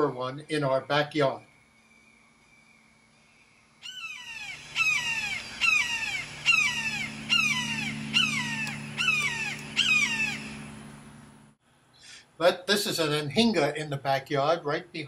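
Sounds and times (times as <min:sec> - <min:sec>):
hawk screaming: 0:03.8 - 0:10.8.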